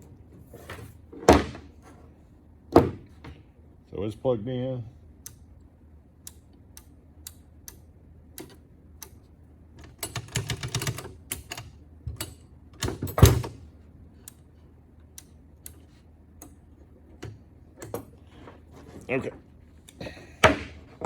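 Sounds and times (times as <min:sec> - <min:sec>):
machine clicks and clacks: 0:09.8 - 0:13.5.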